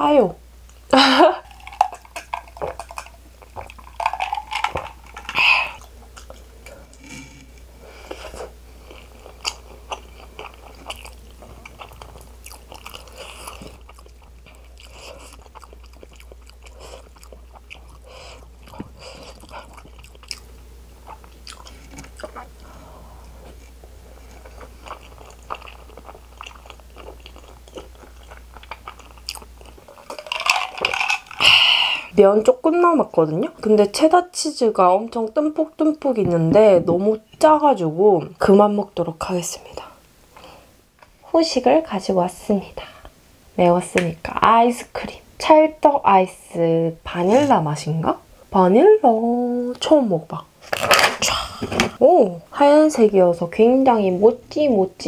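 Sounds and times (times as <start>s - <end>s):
noodles chewing: 1.4s - 31.8s.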